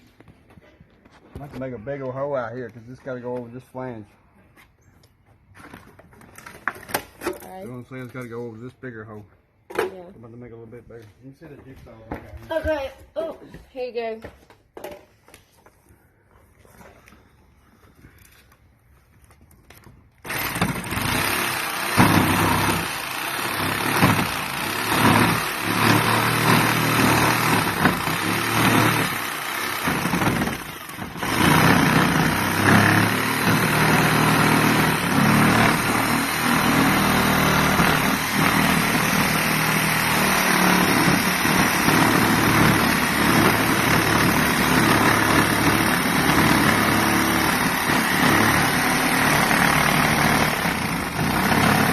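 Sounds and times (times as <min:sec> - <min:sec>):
electric jigsaw cutting: 0:20.2 - 0:51.9.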